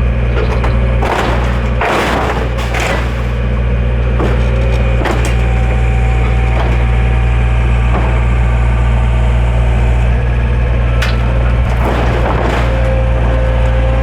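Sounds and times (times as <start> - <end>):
backhoe engine droning: 0.0 - 14.0
sharp knocks: 11.0 - 14.0.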